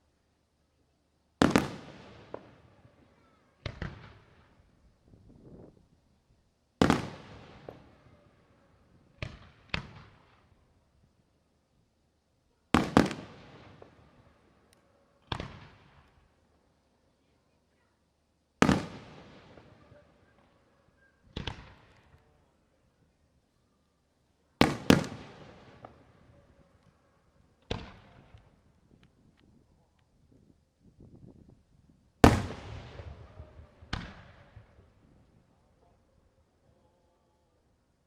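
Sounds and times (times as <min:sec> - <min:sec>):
fireworks booms with echo: 0:01.4 - 0:04.6, 0:06.8 - 0:08.2, 0:09.2 - 0:10.5, 0:12.8 - 0:14.2, 0:15.3 - 0:16.1, 0:18.6 - 0:20.4, 0:21.3 - 0:22.2, 0:24.6 - 0:26.6, 0:27.7 - 0:28.6, 0:32.2 - 0:35.1.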